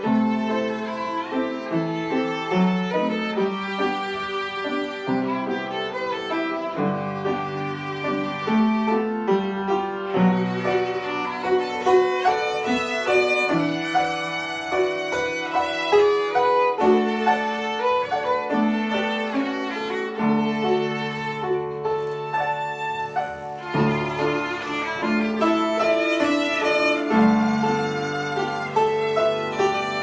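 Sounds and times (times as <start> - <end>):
violin playing slow melody: 0.0 - 30.0.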